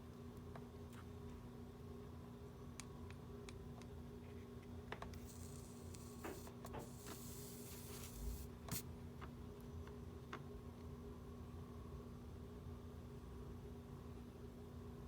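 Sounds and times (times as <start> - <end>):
low electrical hum: 0.0 - 15.0
high hiss: 5.2 - 8.8.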